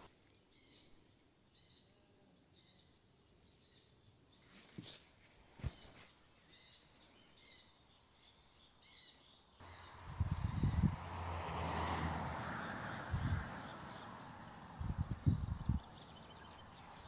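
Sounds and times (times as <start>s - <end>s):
bird chirping: 5.6s - 17.0s.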